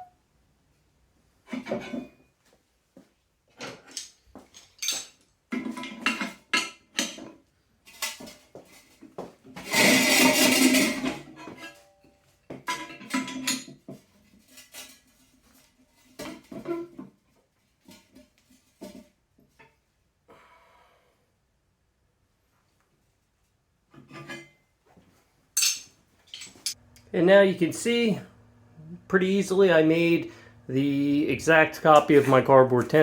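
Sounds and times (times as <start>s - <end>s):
steel plate clanking and knocking: 9.6s - 11.8s.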